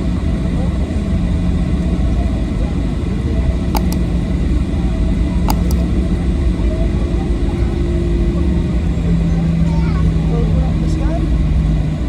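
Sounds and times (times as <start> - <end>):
short clicks: 3.8 - 4.1, 5.5 - 5.9.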